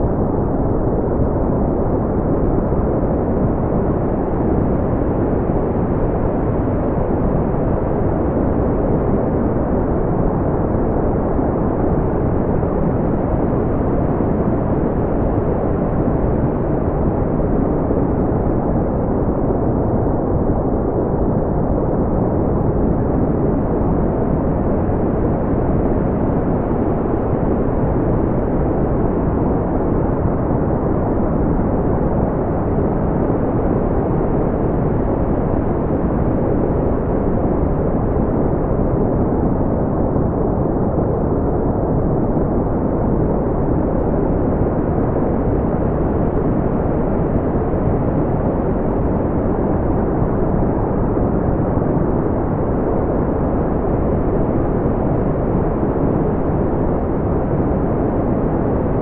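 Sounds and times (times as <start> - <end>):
brown noise rumble: 0.0 - 59.0.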